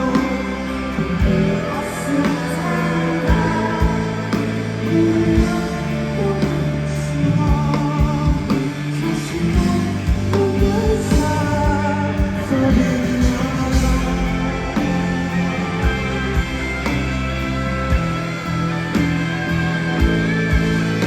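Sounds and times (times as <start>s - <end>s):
person singing: 0.0s - 16.0s
live rock band: 0.0s - 21.0s.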